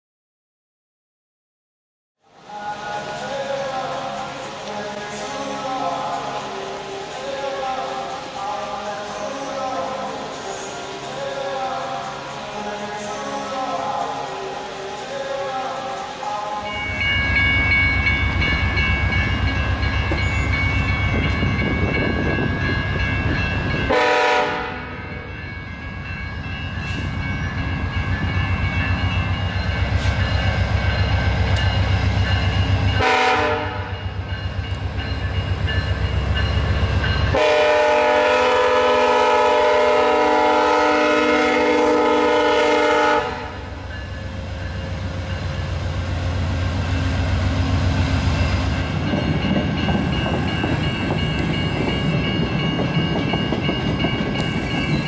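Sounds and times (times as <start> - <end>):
rail noise: 2.2 - 55.0
diesel locomotive engine rumble: 2.4 - 55.0
train horn: 23.9 - 25.3, 33.0 - 34.0, 37.3 - 43.8.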